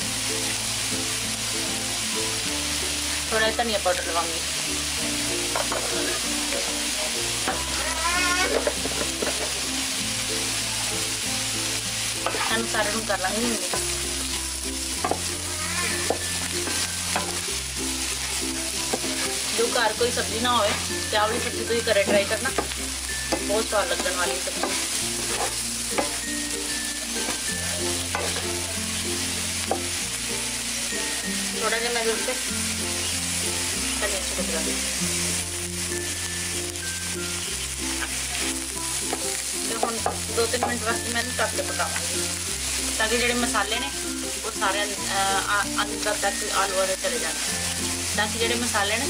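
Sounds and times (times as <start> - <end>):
potatoes sizzling in oil: 0.0 - 49.0
spatula scraping pan: 12.2 - 13.8, 18.8 - 26.2.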